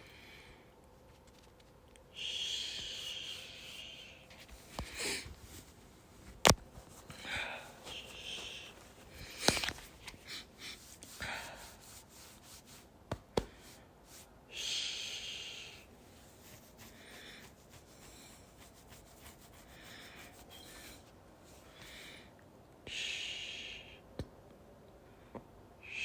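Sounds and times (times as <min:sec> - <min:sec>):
close-up breathing: 0:02.1 - 0:12.8, 0:13.4 - 0:24.0
fabric rustling: 0:04.2 - 0:12.9.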